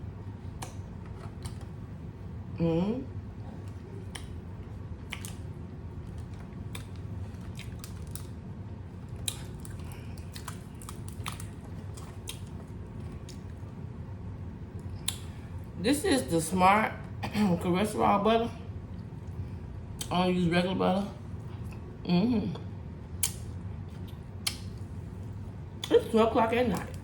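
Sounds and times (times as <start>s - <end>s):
air conditioner hum: 0.0s - 27.0s.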